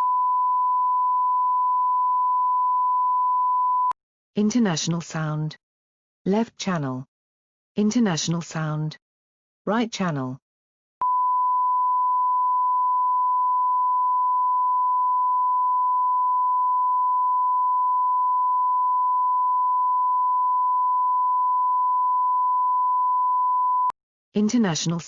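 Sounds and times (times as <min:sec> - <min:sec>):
sine wave test tone: 0:00.0 - 0:04.0, 0:11.0 - 0:23.9.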